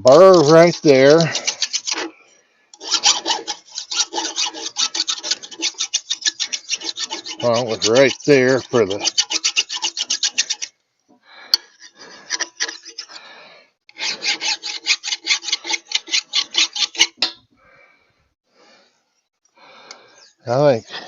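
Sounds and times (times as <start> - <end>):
hand file rasping on metal: 0.1 - 2.1, 2.7 - 10.7, 11.6 - 13.3, 13.9 - 17.4.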